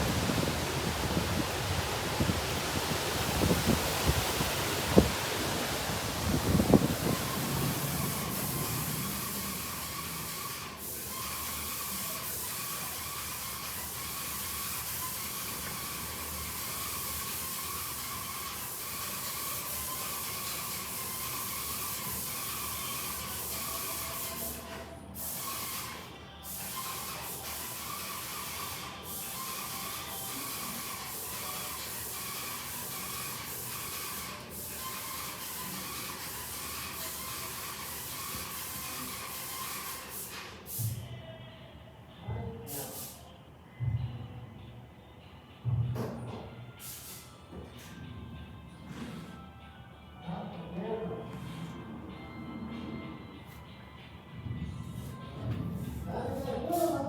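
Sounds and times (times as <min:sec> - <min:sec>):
heavy rain pouring: 0:00.0 - 0:09.6.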